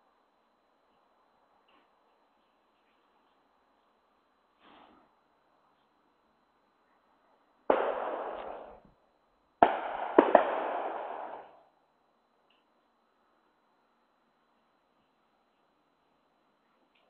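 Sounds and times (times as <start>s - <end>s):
loud bangs: 7.7s - 8.8s, 9.6s - 11.5s.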